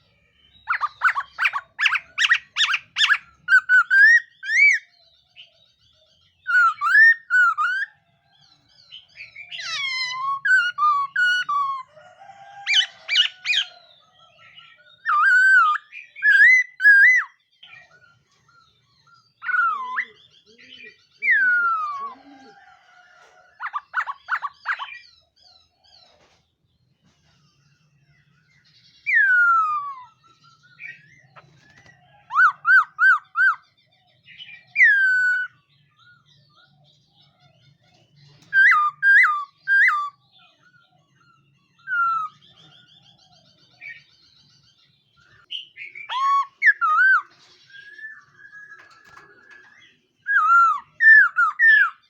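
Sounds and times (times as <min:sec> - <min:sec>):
bird singing whistled phrases: 0:00.5 - 0:04.9, 0:06.4 - 0:08.0, 0:15.0 - 0:17.4, 0:45.5 - 0:49.0.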